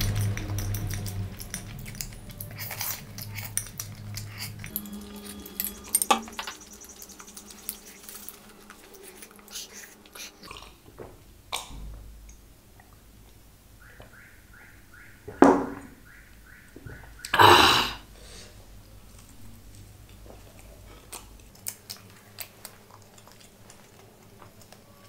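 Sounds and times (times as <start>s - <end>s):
chewing and mouth sounds: 0.0s - 10.9s, 19.0s - 25.0s.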